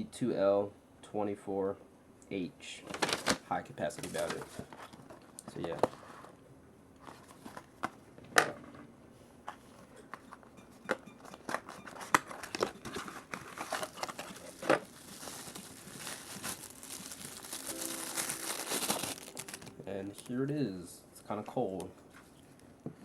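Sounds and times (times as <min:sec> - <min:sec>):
plastic packaging crinkling and tearing: 0:02.9 - 0:05.2, 0:12.0 - 0:20.5.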